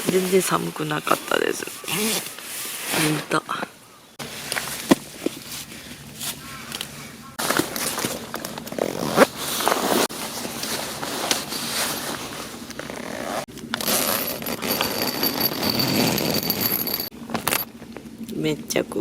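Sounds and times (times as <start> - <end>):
nylon gear rustling: 4.2 - 17.6.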